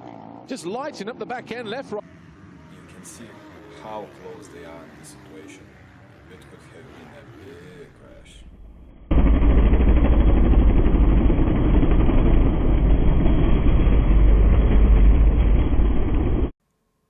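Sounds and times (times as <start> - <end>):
dirt bike engines racing: 0.0 - 8.9.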